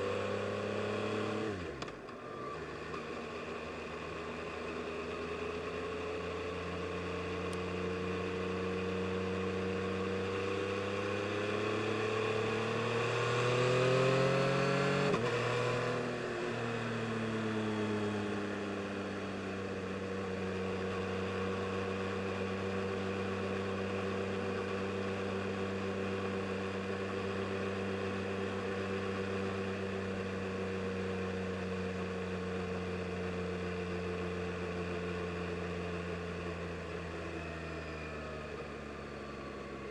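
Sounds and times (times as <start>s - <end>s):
motorcycle engine revving: 8.2s - 18.8s.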